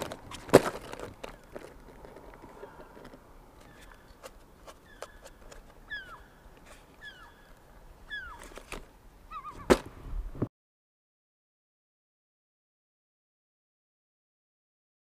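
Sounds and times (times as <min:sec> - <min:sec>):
bird falling call: 0:02.4 - 0:08.7, 0:09.3 - 0:09.9.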